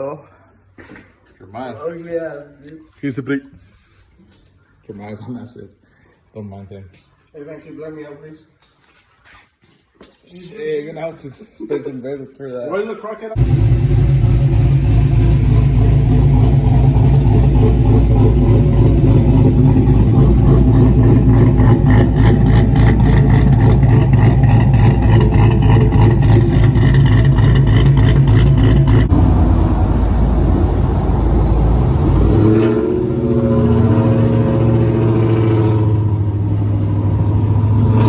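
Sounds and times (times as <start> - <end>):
vehicle engine running: 13.4 - 38.0.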